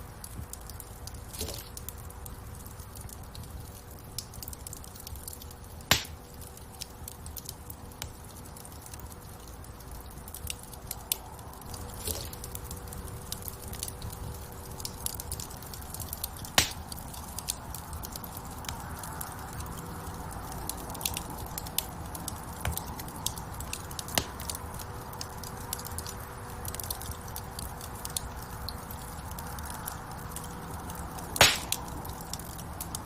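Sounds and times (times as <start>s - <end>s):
wood fire crackling: 0.0s - 33.0s
loud sharp pops: 5.9s - 6.2s, 16.5s - 16.8s, 31.4s - 32.0s.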